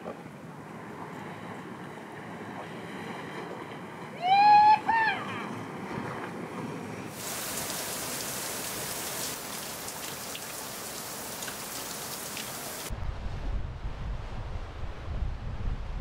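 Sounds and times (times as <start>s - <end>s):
rain falling on deck: 7.1s - 12.9s
raindrops ticking on fittings: 7.2s - 12.9s
wind rumble on microphone: 12.9s - 16.0s.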